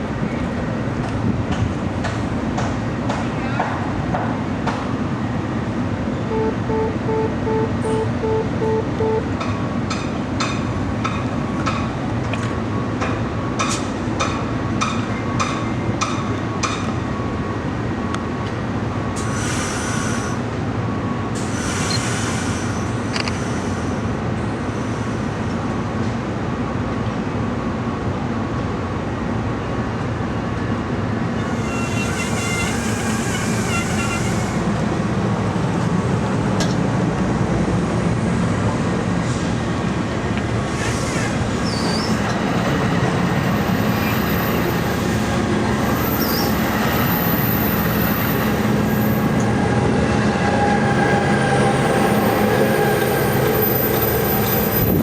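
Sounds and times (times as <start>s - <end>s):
train rumbling: 0.0s - 55.0s
hiss: 19.2s - 20.4s, 21.4s - 24.0s, 40.7s - 42.1s
high squeal: 31.4s - 34.6s.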